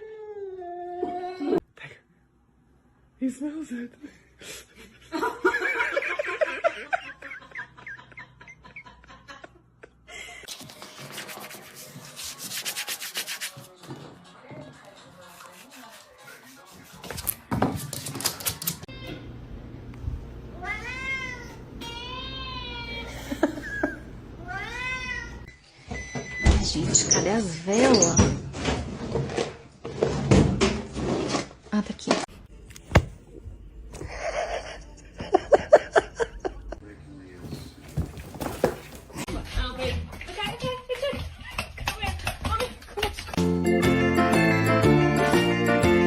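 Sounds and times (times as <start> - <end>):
scraping rubbing noise: 37.4 - 39.2.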